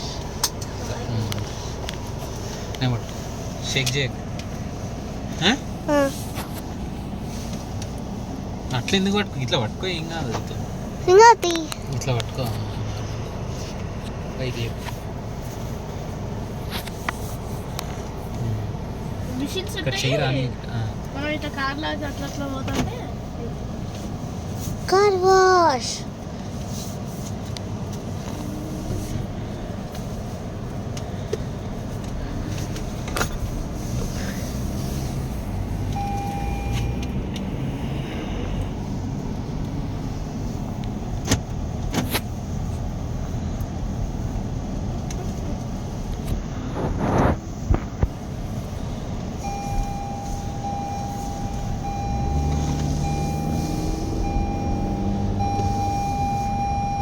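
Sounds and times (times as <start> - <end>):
car cabin low rumble: 0.0 - 57.0
seat belt warning chime: 35.9 - 37.1, 49.4 - 57.0.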